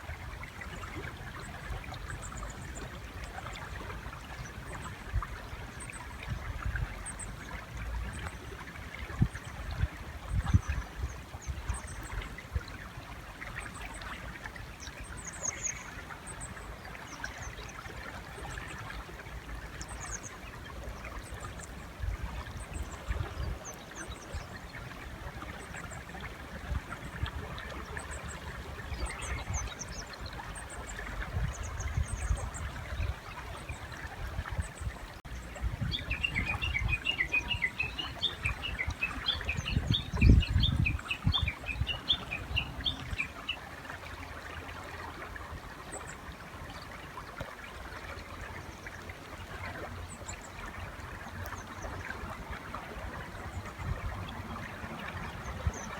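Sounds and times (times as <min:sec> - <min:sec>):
river flowing: 0:40.9 - 0:55.9.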